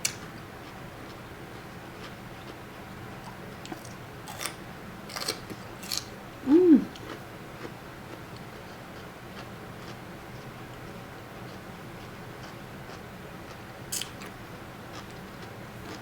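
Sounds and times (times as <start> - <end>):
crunchy chewing: 3.2 - 16.0
person humming: 6.4 - 7.0.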